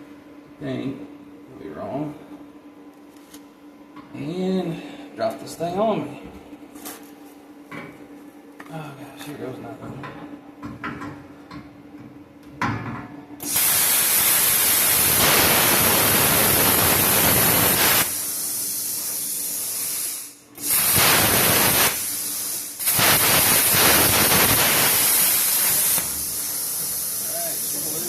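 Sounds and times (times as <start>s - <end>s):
plasma cutter hissing: 13.4s - 28.0s.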